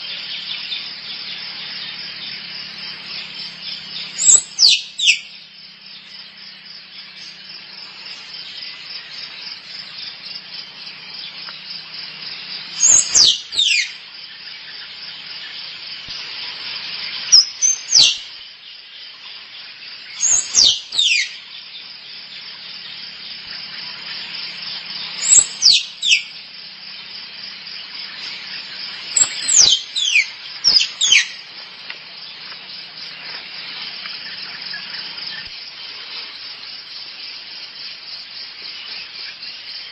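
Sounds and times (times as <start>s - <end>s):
insect drone: 0.0s - 39.9s
squirrel chirping: 3.4s - 5.3s, 12.8s - 13.9s, 25.2s - 26.3s, 29.1s - 31.4s.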